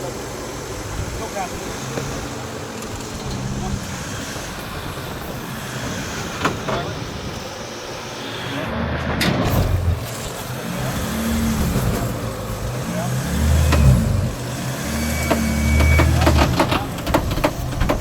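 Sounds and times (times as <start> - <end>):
engine revving under load: 0.0 - 18.0.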